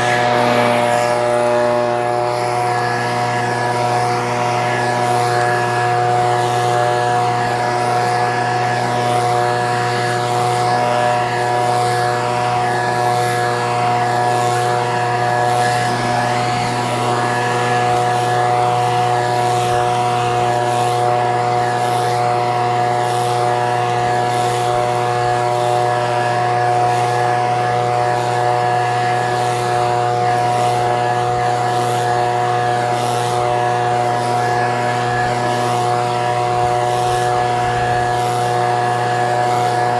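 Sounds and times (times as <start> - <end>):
leaf blower engine running: 0.0 - 39.9.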